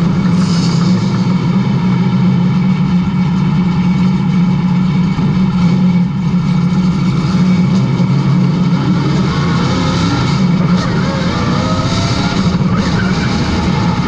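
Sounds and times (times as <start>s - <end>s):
vehicle engine running steadily: 0.0s - 14.0s.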